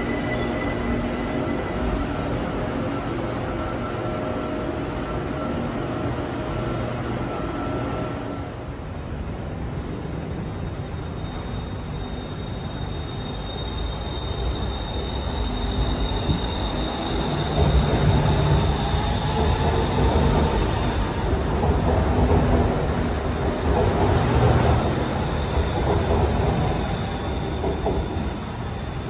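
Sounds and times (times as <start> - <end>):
electric train rumble: 0.0 - 29.0.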